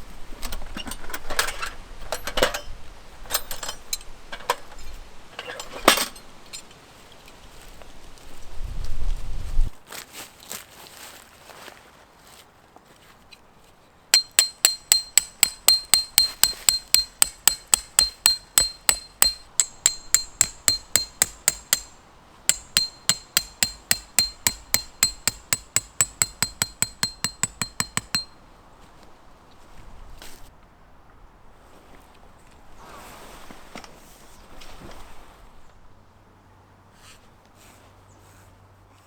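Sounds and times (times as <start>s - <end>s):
hammer striking tent peg: 14.2s - 28.4s.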